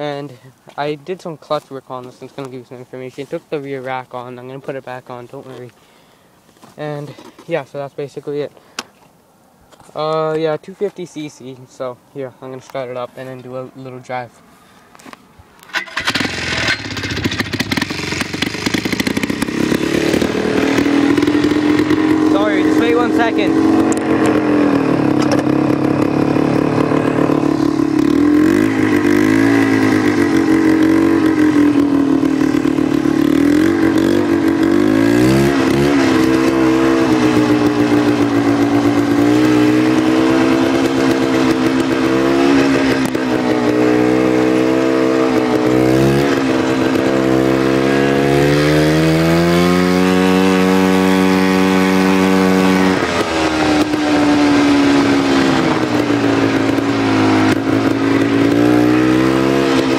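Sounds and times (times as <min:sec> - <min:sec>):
two-stroke engine revving: 0:15.7 - 0:59.9.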